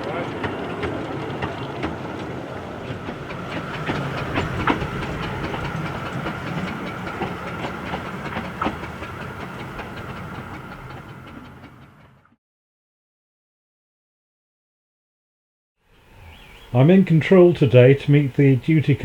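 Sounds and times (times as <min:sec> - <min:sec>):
train rumbling along track: 0:00.0 - 0:12.4, 0:16.0 - 0:19.0
wheels clicking over rail joints: 0:00.0 - 0:12.4.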